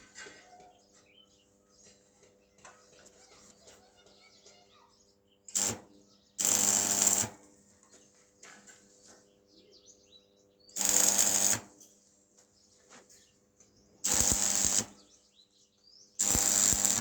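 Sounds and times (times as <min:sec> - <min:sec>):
power tool bursts: 0:05.5 - 0:07.4, 0:10.8 - 0:11.8, 0:14.0 - 0:15.0, 0:16.2 - 0:17.0.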